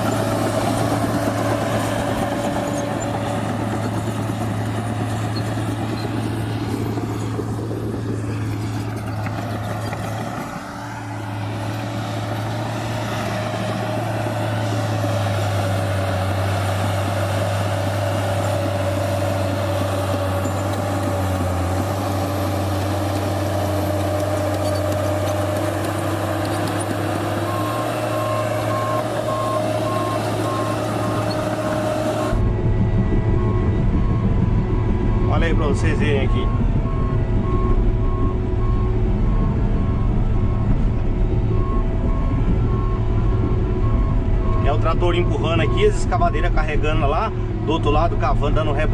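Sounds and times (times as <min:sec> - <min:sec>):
diesel engine running: 0:00.0 - 0:48.9
reversing alarm beeping: 0:27.4 - 0:46.5.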